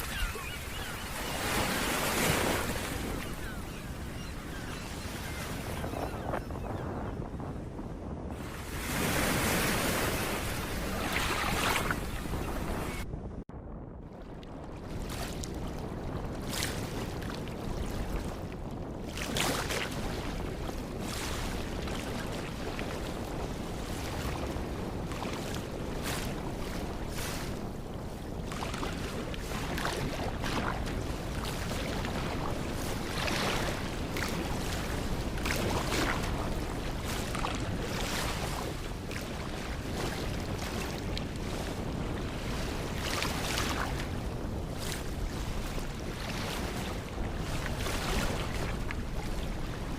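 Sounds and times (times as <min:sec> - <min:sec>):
wind gusting over microphone: 0:00.0 - 0:49.9
ocean surf washing on beach: 0:14.5 - 0:49.9.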